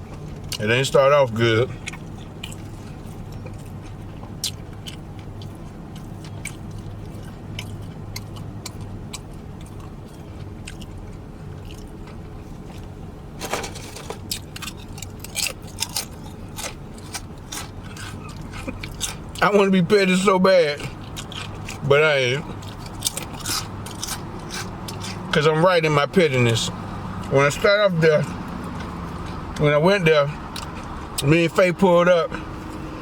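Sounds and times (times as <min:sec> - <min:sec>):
steady low hum: 0:00.0 - 0:33.0
person chewing food: 0:01.7 - 0:19.4, 0:20.8 - 0:25.4, 0:28.2 - 0:29.6, 0:30.4 - 0:31.2.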